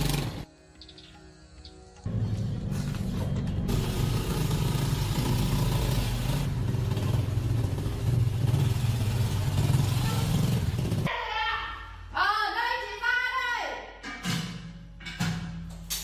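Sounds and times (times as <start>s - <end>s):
motorcycle engine running: 0.0s - 0.5s, 2.1s - 11.1s.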